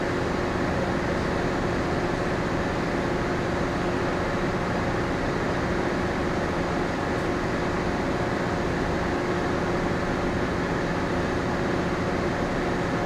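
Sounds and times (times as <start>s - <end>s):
ship machinery and ventilation drone: 0.0s - 13.0s.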